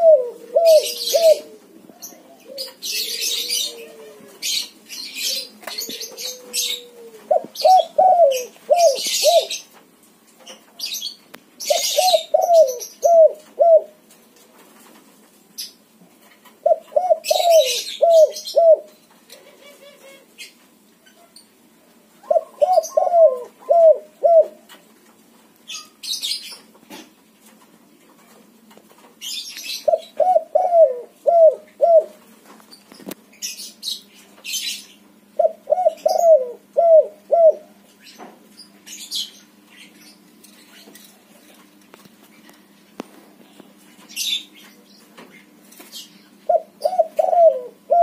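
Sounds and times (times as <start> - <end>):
dove cooing: 0.0 - 9.7, 11.6 - 14.0, 16.6 - 20.3, 22.2 - 24.7, 29.7 - 32.2, 35.4 - 37.8, 46.5 - 48.0
small birds chirping: 0.4 - 13.5, 25.6 - 27.1, 28.2 - 36.6, 37.5 - 47.7.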